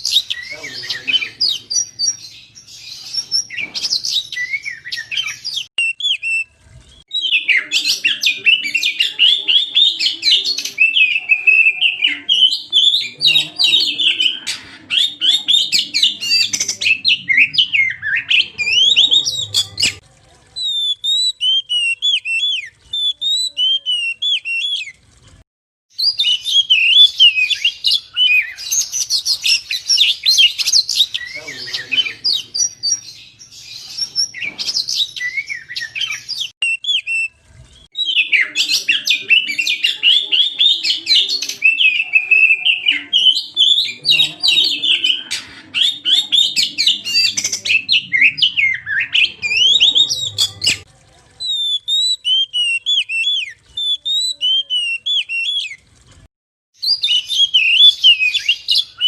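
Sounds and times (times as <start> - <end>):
songbird singing whistled notes: 0.0 - 20.0, 20.6 - 25.0, 26.0 - 50.8, 51.4 - 55.8, 56.8 - 59.0.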